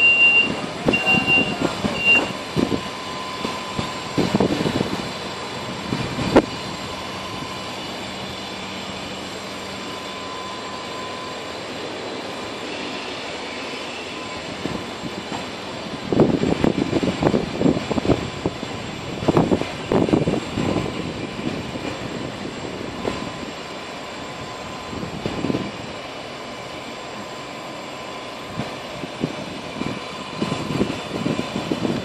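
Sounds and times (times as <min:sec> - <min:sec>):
short high beeps: 0:00.0 - 0:02.4
railbus engine humming: 0:00.0 - 0:32.0
thin steady whine: 0:00.0 - 0:32.0.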